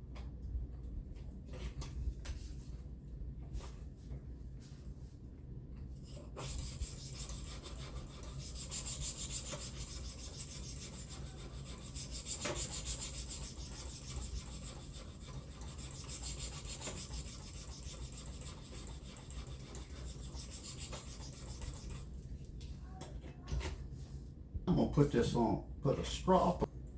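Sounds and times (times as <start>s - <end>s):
knife scraping on ceramic sharpener: 6.4s - 22.1s.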